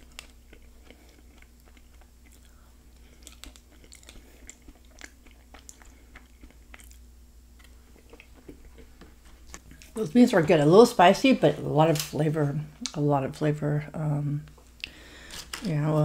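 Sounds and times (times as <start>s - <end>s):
chewing and mouth sounds: 0.0s - 10.0s.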